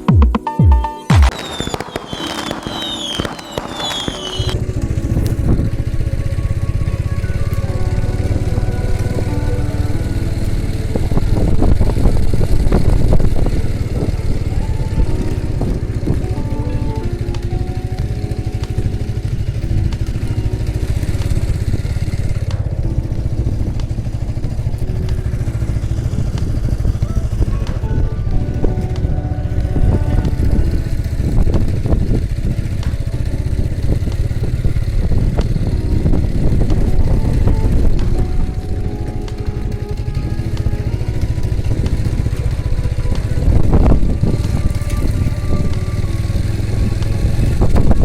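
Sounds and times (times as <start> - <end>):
background music: 0.0 - 48.0
firework crackling and whistles: 0.7 - 9.6, 30.4 - 48.0
rapidly pulsing engine drone: 1.4 - 48.0.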